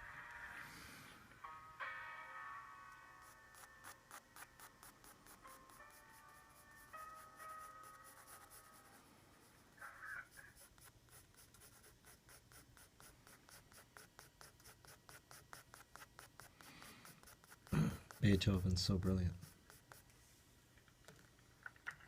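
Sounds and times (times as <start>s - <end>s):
soft music: 0.0s - 10.4s, 17.7s - 19.6s
pencil scratching on paper: 3.2s - 20.1s.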